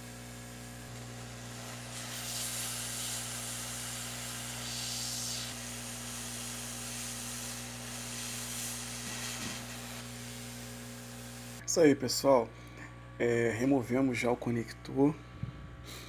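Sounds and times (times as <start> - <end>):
hot air nozzle hissing: 0.0 - 11.6
electrical hum: 0.0 - 16.0.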